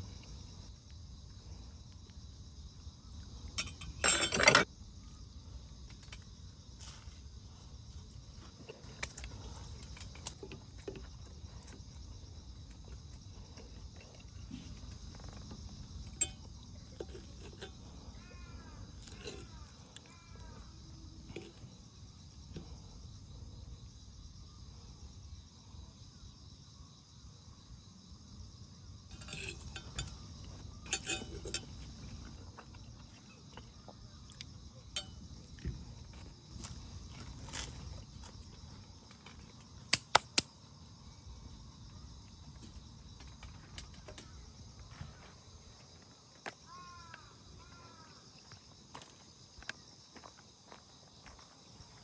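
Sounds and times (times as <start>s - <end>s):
crickets and insects chirping: 0.0s - 52.0s
cooking gear clinking and knocking: 3.4s - 4.7s, 8.3s - 12.0s, 12.6s - 22.8s, 29.1s - 33.6s, 34.8s - 40.5s.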